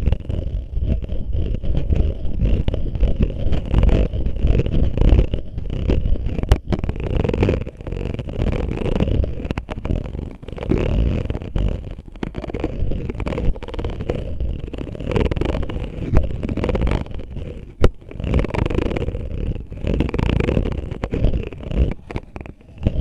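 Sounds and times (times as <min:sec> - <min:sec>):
bottle scraping on microphone: 0:00.0 - 0:23.0.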